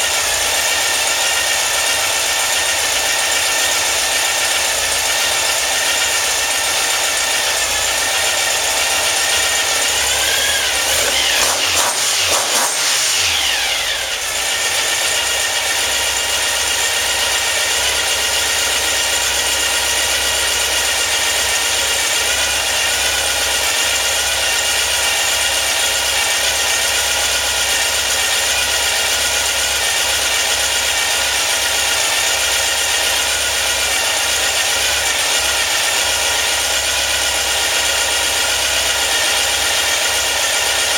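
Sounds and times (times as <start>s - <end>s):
car engine idling and revving: 0.0s - 40.9s.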